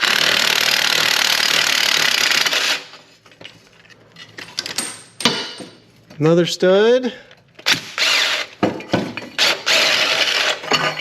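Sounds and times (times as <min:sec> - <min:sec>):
handheld power tool running: 0:00.0 - 0:02.9, 0:07.6 - 0:08.6, 0:09.4 - 0:10.6.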